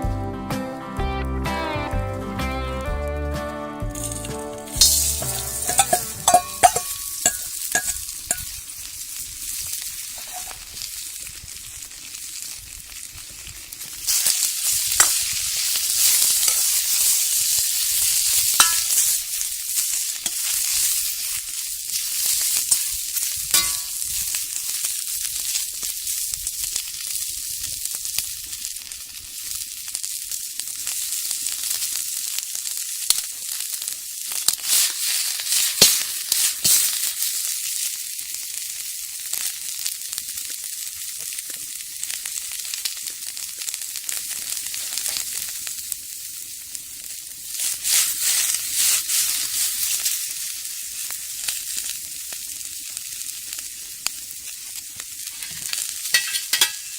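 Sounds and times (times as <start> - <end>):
food sizzling in hot oil: 3.9 - 56.9.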